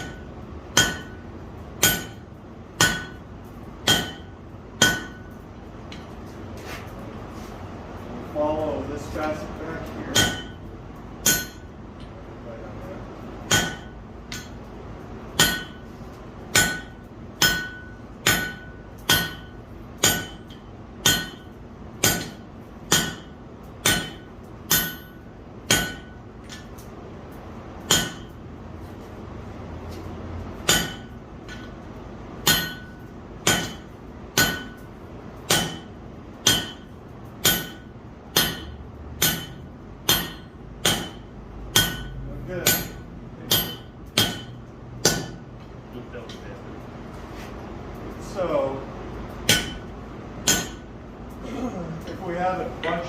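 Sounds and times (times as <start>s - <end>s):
hammer striking steel on anvil: 0.0s - 6.2s, 9.8s - 12.1s, 13.4s - 14.7s, 15.3s - 26.9s, 27.8s - 28.4s, 29.9s - 45.5s, 49.3s - 50.9s.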